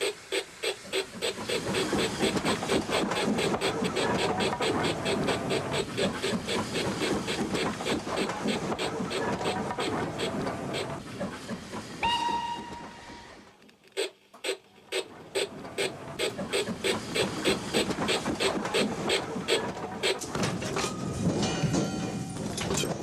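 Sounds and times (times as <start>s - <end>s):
locomotive running beats: 0.0s - 13.3s, 14.0s - 23.0s
steam locomotive whistle: 12.0s - 13.5s.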